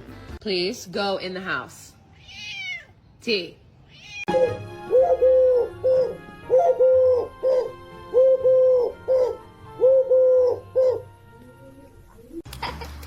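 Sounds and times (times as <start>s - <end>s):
bird cooing: 4.3s - 12.4s.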